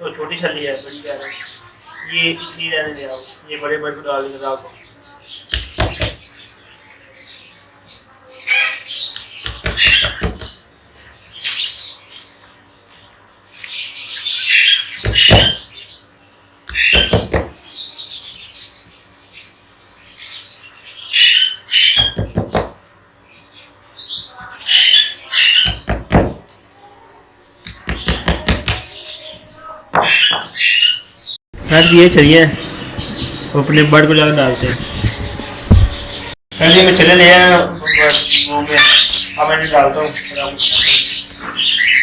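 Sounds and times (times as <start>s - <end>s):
parrots chirping and squawking: 0.1s - 12.6s, 13.5s - 26.6s, 27.7s - 42.0s
knife chopping on cutting board: 5.6s - 6.2s, 9.5s - 10.6s, 15.0s - 15.6s, 16.7s - 17.6s, 22.0s - 22.8s, 25.7s - 26.5s, 27.7s - 28.9s.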